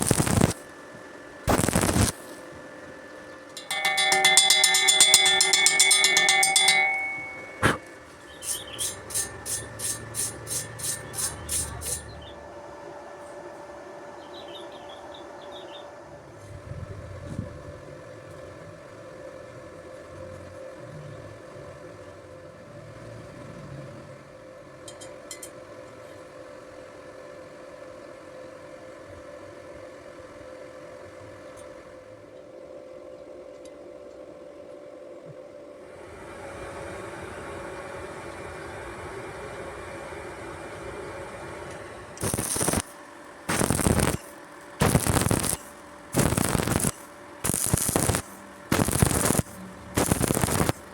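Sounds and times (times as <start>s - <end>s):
faint steady hum: 0.0s - 50.9s
hand tool scraping: 3.6s - 12.2s, 42.2s - 42.9s, 43.5s - 50.8s
mid-pitched tone: 3.7s - 7.9s.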